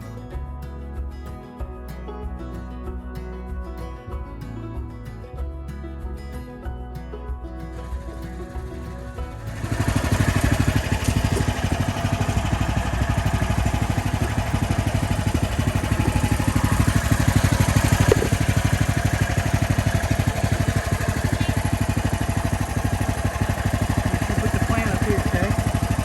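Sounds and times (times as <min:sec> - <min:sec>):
small petrol engine running: 0:07.7 - 0:26.0.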